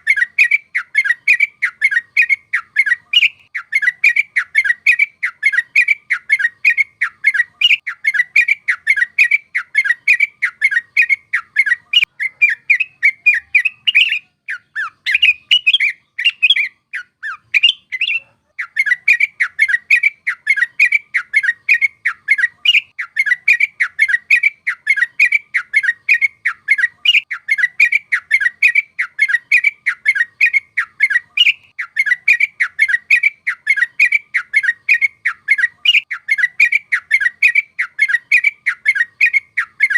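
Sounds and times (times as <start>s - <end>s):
bird singing bubbly chatter: 0.0s - 39.9s.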